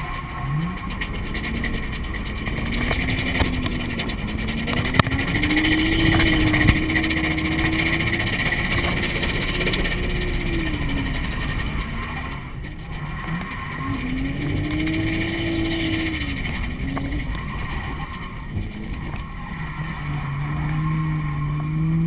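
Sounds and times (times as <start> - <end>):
car engine revving: 0.0 - 22.0
road and tyre noise: 0.0 - 22.0.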